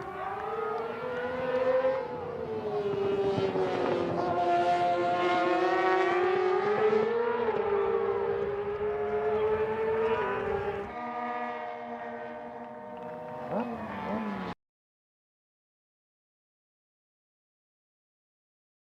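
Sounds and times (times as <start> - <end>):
racing motorbike engines whining: 0.0 - 14.6.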